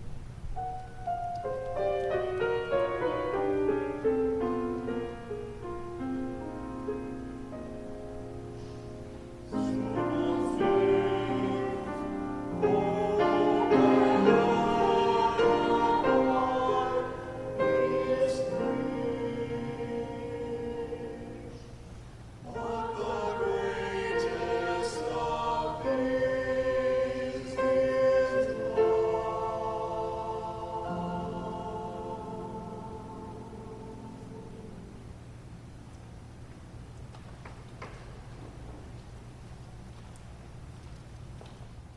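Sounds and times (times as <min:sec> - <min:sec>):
piano accompaniment: 0:00.0 - 0:21.7
choir singing: 0:02.2 - 0:07.0, 0:09.1 - 0:35.5.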